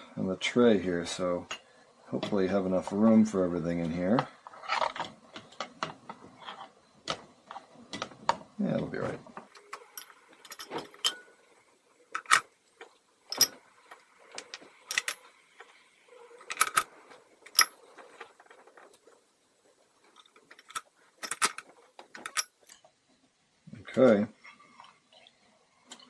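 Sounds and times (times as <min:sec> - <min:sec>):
metal parts clinking on a tray: 0:09.6 - 0:11.5, 0:12.1 - 0:12.5, 0:13.3 - 0:15.3, 0:16.4 - 0:19.0, 0:20.1 - 0:22.7.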